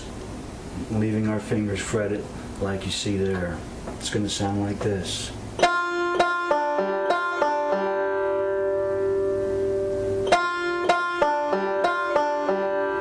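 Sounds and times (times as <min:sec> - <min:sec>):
banjo fingerpicking: 0:05.6 - 0:13.0.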